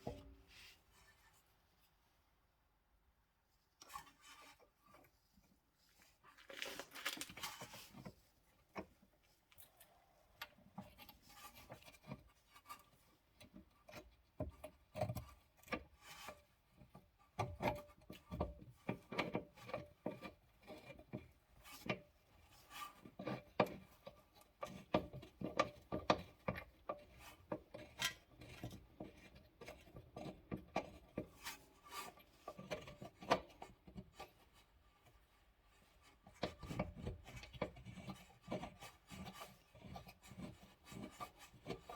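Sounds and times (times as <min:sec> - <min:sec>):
tools clicking and scraping metal: 0:27.7 - 0:28.8.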